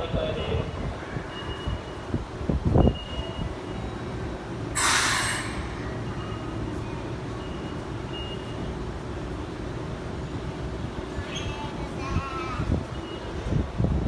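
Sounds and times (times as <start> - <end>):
train low rumble: 0.0 - 14.0
air hiss from train: 4.7 - 6.1.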